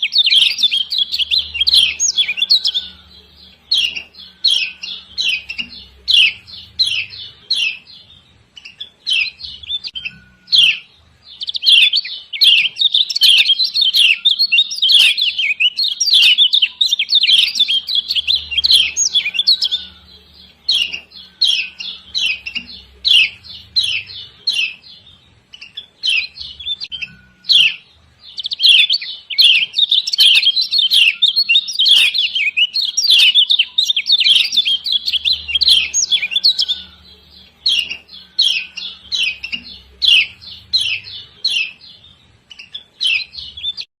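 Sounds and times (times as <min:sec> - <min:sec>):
bird chirping rapidly: 0:00.0 - 0:43.9.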